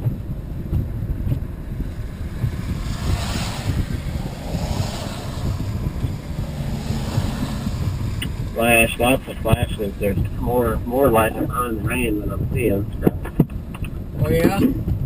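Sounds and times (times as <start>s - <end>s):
wind buffeting microphone: 0.0s - 15.0s
rush of noise: 1.4s - 13.0s.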